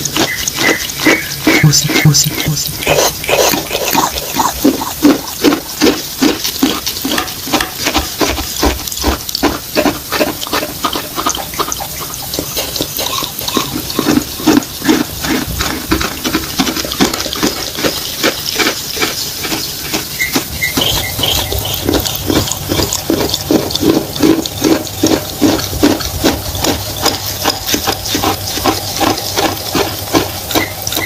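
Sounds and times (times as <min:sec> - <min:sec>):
wet squelching chewing: 0:00.0 - 0:31.0.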